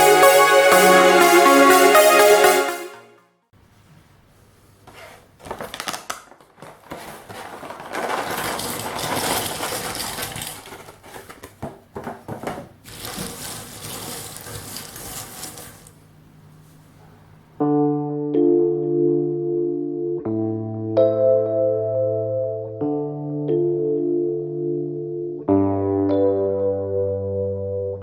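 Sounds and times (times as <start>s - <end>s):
puzzle pieces rattling: 7.6s - 11.2s.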